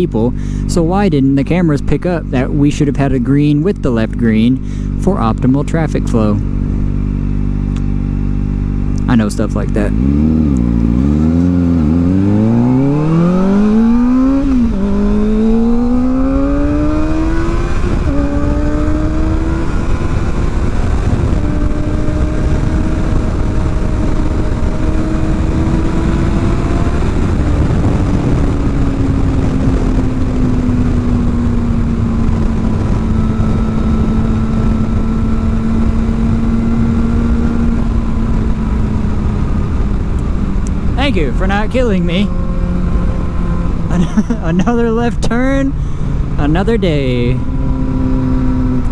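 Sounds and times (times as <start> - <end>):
motorcycle engine revving through gears: 0.0 - 48.9
wind rushing: 10.0 - 23.8.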